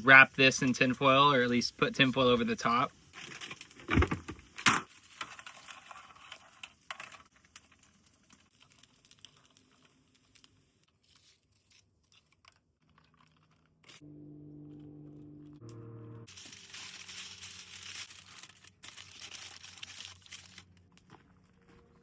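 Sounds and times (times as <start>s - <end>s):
aluminium foil tearing and crinkling: 3.1s - 4.0s, 4.6s - 14.0s, 16.3s - 21.1s.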